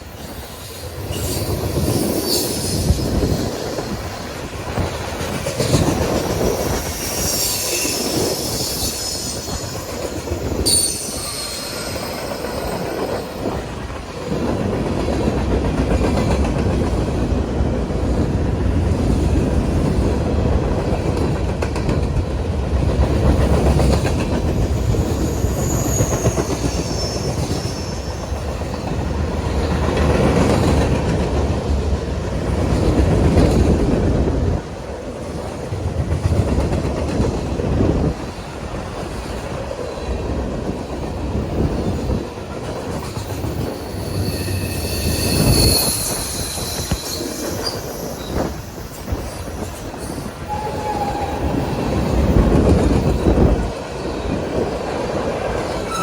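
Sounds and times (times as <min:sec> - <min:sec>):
high wheel squeals: 0:00.8 - 0:04.0, 0:06.9 - 0:13.4, 0:24.6 - 0:28.3, 0:43.3 - 0:52.3
train wheels clicking over rail joints: 0:00.9 - 0:17.4, 0:18.0 - 0:34.4.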